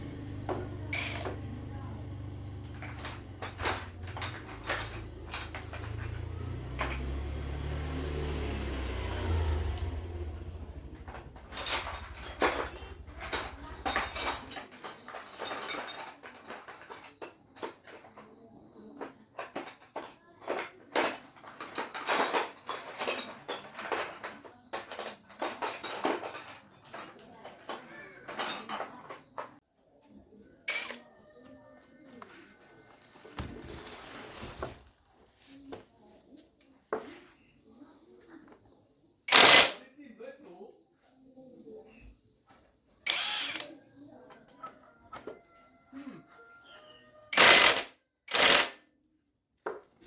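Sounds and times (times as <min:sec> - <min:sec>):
metal tools clinking: 0:00.9 - 0:01.5, 0:02.5 - 0:07.4, 0:09.6 - 0:18.2, 0:19.4 - 0:29.2, 0:30.7 - 0:31.0, 0:39.3 - 0:39.8, 0:47.4 - 0:48.8.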